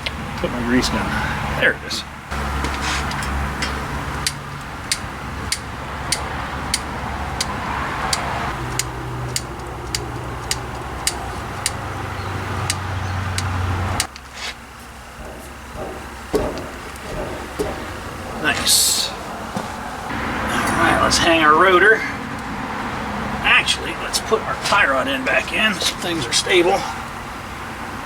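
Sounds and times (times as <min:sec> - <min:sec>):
powered grease gun running: 0:08.6 - 0:20.4.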